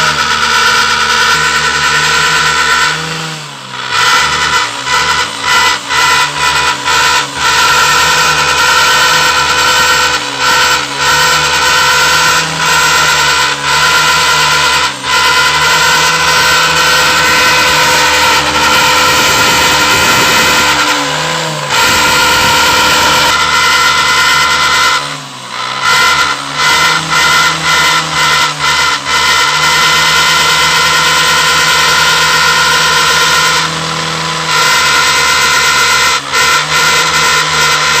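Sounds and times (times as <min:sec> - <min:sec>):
motorcycle exhaust drone: 0:00.0 - 0:38.0.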